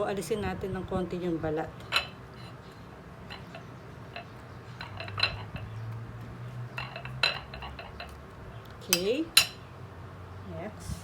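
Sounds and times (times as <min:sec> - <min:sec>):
low steady hum: 0:00.0 - 0:11.0
fork clinking on a plate: 0:01.8 - 0:02.6, 0:03.3 - 0:05.8, 0:06.7 - 0:08.2, 0:08.9 - 0:09.7.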